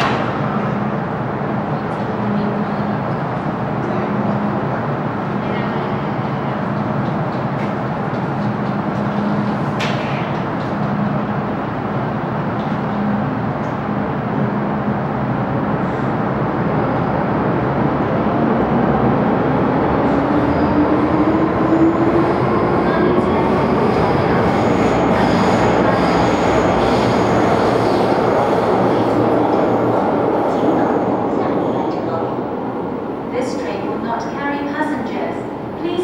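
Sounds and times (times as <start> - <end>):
train wheel and rail noise: 0.0 - 36.0.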